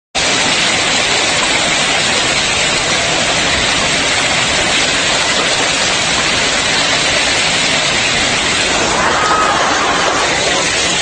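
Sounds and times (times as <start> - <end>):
heavy downpour hiss: 0.2 - 11.0.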